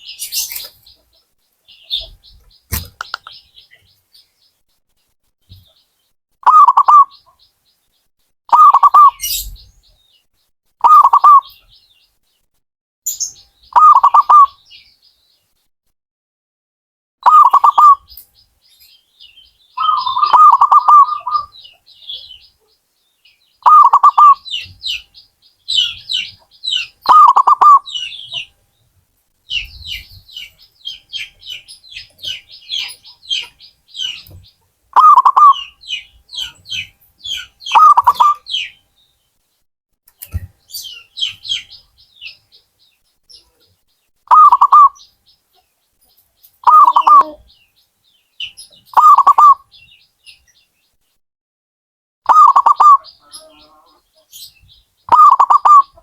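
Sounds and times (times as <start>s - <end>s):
small birds chirping: 0.0s - 15.7s, 17.2s - 51.2s, 52.3s - 56.0s
dove cooing: 6.4s - 7.2s, 10.8s - 11.5s, 13.8s - 14.6s, 19.8s - 21.6s, 23.6s - 25.0s, 25.7s - 28.5s, 35.0s - 36.8s, 37.4s - 38.6s, 44.3s - 45.0s, 46.6s - 47.5s, 52.3s - 54.3s, 55.1s - 56.0s.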